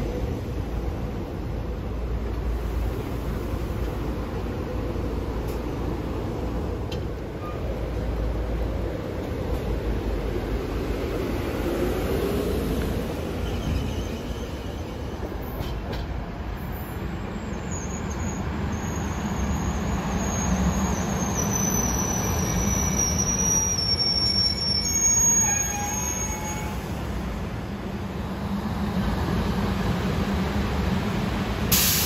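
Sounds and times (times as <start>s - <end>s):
train rumbling on rails: 0.0s - 32.0s
high-pitched wheel squeal: 17.2s - 26.9s.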